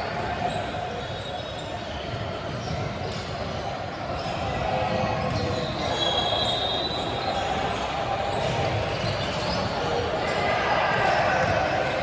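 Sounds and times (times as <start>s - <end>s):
shoe squeak: 0.4s - 2.9s, 5.2s - 10.0s.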